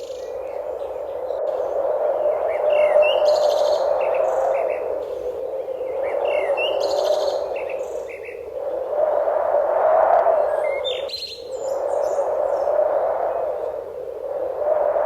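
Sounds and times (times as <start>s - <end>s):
songbirds chirping and trilling: 0.0s - 8.8s, 10.4s - 13.8s.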